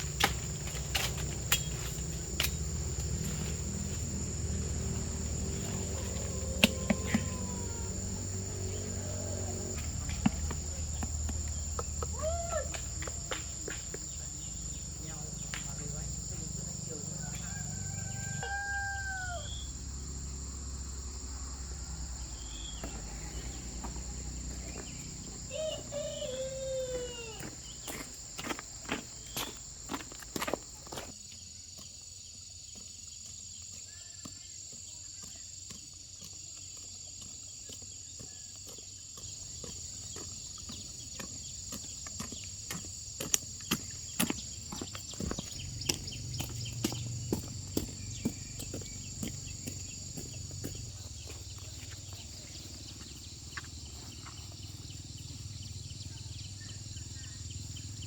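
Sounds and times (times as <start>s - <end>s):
insects trilling: 0.0s - 58.0s
bird calls: 22.3s - 30.0s.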